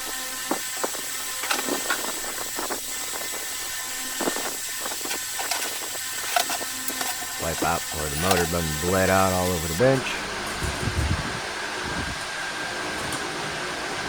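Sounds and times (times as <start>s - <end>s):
faint high whine: 0.0s - 12.5s.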